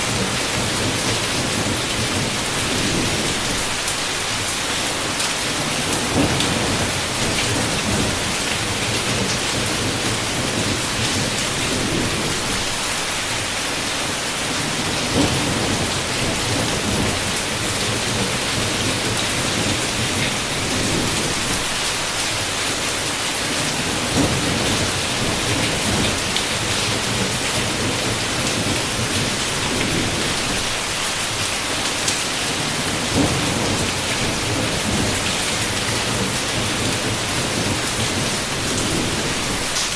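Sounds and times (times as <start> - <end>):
heavy rain on a window: 0.0 - 39.9
thunder rumble: 5.6 - 12.8, 14.9 - 21.8.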